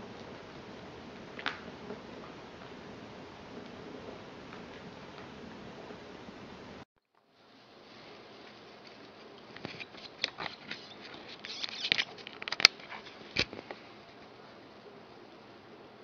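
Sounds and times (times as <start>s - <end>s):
rustling in wood shavings: 7.3s - 15.4s.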